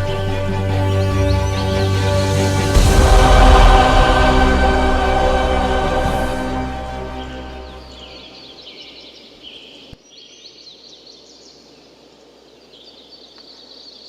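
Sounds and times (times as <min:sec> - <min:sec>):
music track: 0:00.0 - 0:08.5.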